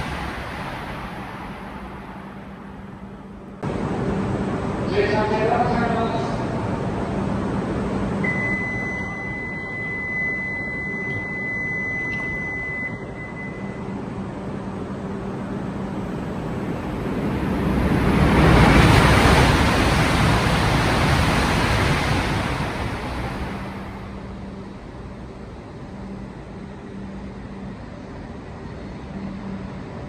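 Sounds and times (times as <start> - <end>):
train rushing: 0.0 - 8.2, 15.2 - 30.0
steady high-pitched tone: 7.5 - 14.7.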